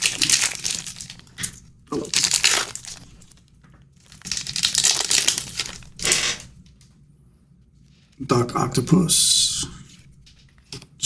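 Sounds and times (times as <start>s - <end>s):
card pack wrapper crinkling: 0.0s - 3.4s, 4.0s - 6.6s.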